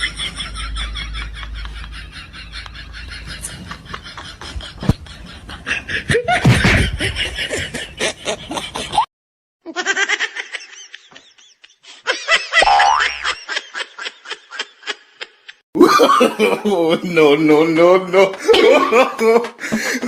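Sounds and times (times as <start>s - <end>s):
people laughing: 0.0s - 9.1s, 9.7s - 17.2s, 17.8s - 20.0s.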